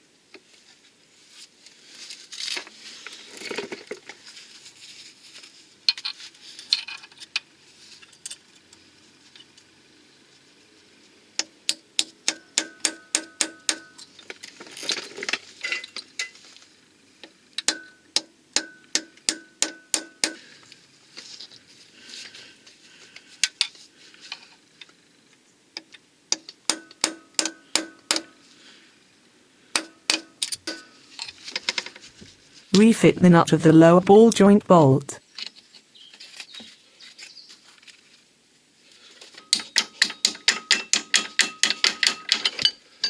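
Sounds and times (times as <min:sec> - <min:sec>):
hammer striking steel: 0:11.4 - 0:14.0, 0:17.6 - 0:20.4, 0:26.4 - 0:28.4, 0:29.8 - 0:31.0, 0:39.5 - 0:42.4
tools scraping: 0:29.8 - 0:32.2.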